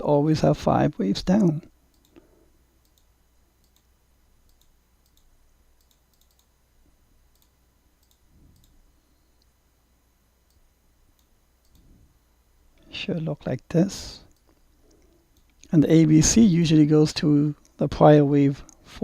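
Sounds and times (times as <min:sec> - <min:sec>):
computer mouse clicks: 0:01.4 - 0:02.2, 0:02.8 - 0:03.9, 0:04.5 - 0:06.5, 0:07.3 - 0:08.8, 0:11.2 - 0:11.9.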